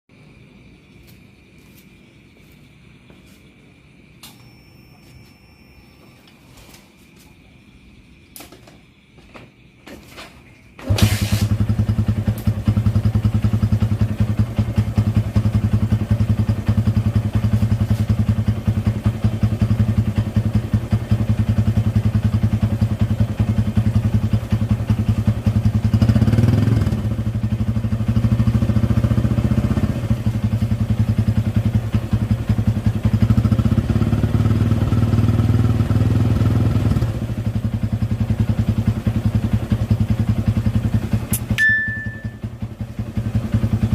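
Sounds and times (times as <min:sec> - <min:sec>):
motorcycle engine starting and idling: 0:08.4 - 0:43.9
motorcycle engine revving: 0:10.8 - 0:43.9.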